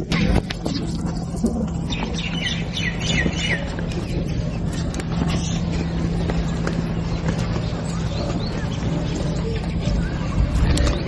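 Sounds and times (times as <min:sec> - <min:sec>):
low hum: 0:00.0 - 0:11.0
bird chirping: 0:01.8 - 0:04.2.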